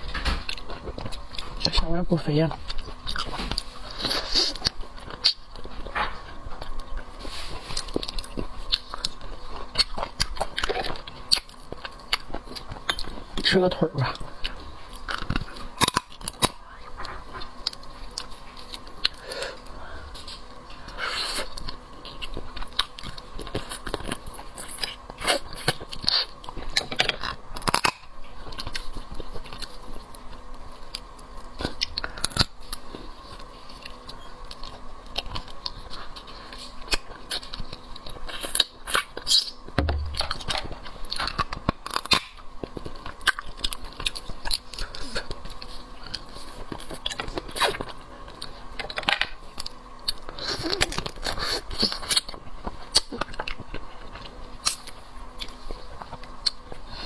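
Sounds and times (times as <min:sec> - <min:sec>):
wet chewing: 0:02.4 - 0:13.4, 0:14.1 - 0:57.0
shell cracking and crunching: 0:15.0 - 0:16.6, 0:25.7 - 0:28.8, 0:38.4 - 0:44.8.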